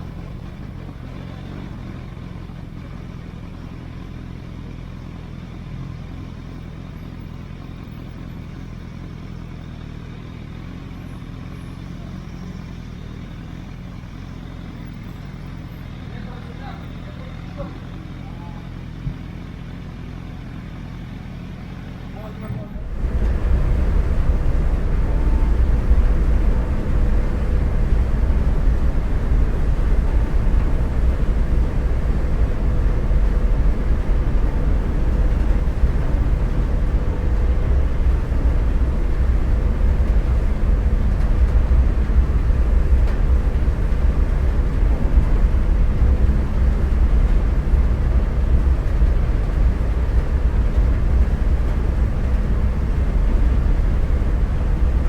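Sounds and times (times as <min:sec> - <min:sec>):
motorcycle engine rumble: 0:00.0 - 0:55.0
faint steady whine: 0:22.7 - 0:55.0
rushing air: 0:22.8 - 0:55.0.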